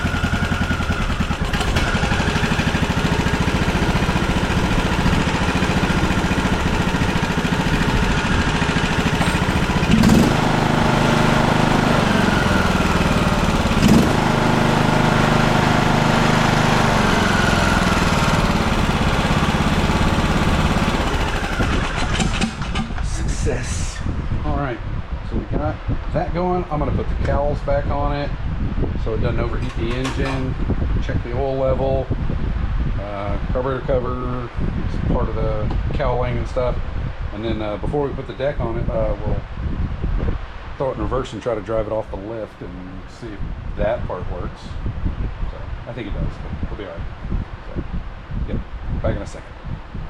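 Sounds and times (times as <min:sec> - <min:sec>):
riding mower engine running: 0:00.0 - 0:24.5, 0:29.5 - 0:30.7.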